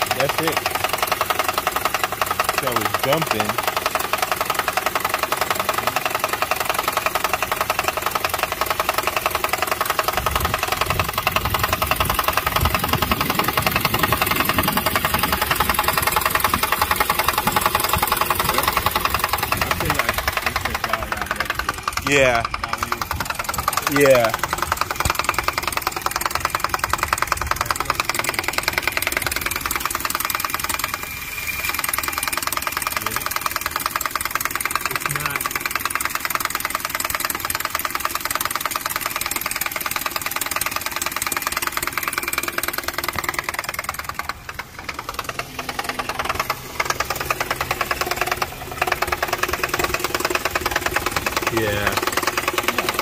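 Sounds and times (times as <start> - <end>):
car engine running: 0.0 - 53.0
fast mechanical knocking: 0.0 - 53.0.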